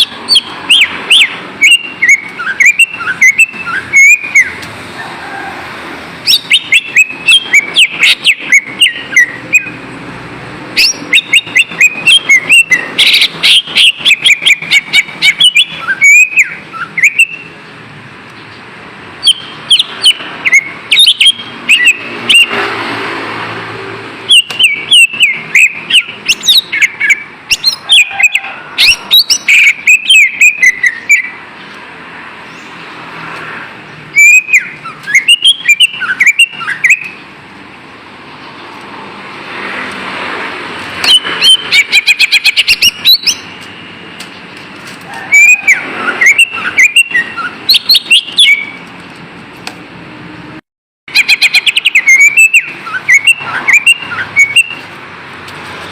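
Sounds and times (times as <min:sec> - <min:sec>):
bird singing chirps and whistles: 0:00.0 - 0:04.6, 0:06.2 - 0:09.8, 0:10.8 - 0:17.6, 0:19.2 - 0:22.6, 0:24.3 - 0:31.4, 0:34.1 - 0:37.2, 0:41.0 - 0:43.6, 0:45.3 - 0:48.8, 0:51.1 - 0:54.8.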